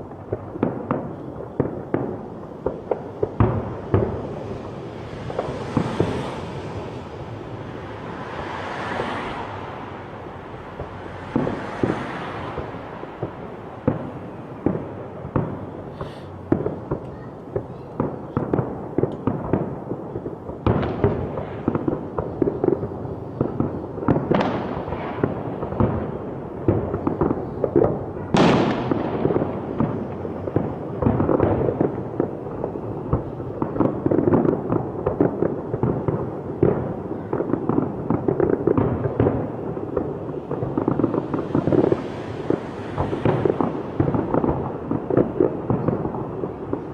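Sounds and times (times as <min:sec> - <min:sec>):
fireworks bangs and crackles: 0:00.0 - 0:46.9
fireworks hissing streaks: 0:15.3 - 0:17.0, 0:40.6 - 0:44.5.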